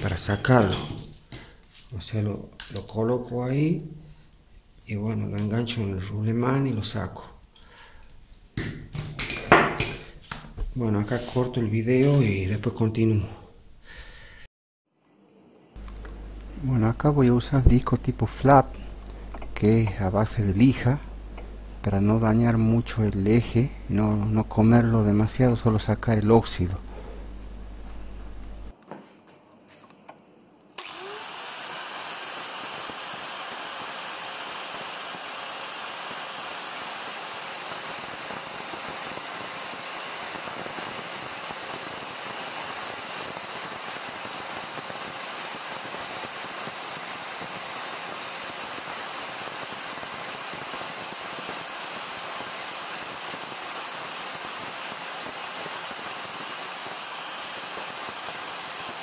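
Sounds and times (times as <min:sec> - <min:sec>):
angle grinder sanding metal: 0:30.8 - 0:59.0.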